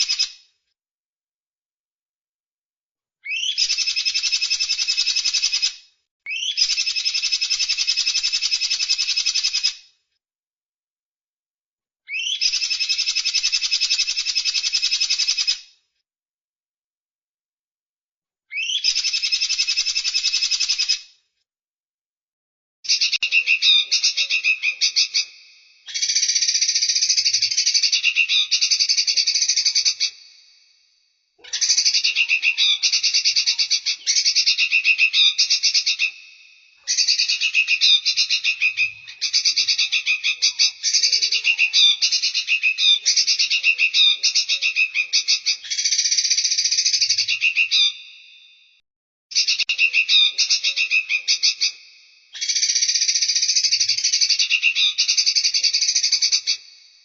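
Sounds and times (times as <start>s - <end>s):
songbird buzzy trilling calls: 3.3s - 5.6s, 18.6s - 20.9s, 22.9s - 30.4s, 31.4s - 48.2s, 49.3s - 56.7s.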